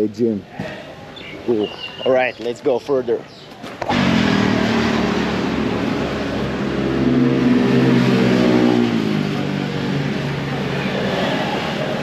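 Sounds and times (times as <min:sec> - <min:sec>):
wind and road noise: 0:00.0 - 0:12.0
motorbike engine pulling away: 0:03.9 - 0:12.0.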